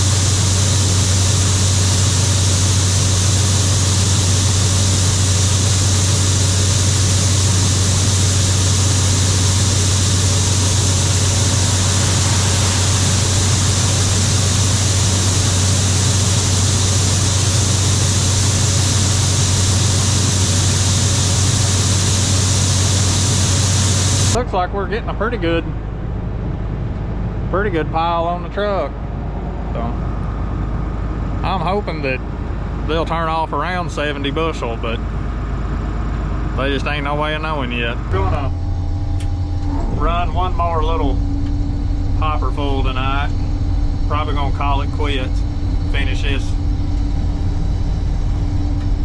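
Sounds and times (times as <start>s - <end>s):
machinery hiss: 0.0s - 24.4s
combine engine drone: 0.0s - 49.0s.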